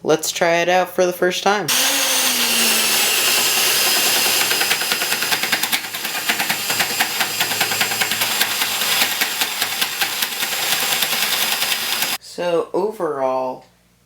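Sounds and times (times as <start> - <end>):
wood lathe rattling: 1.7 - 12.2.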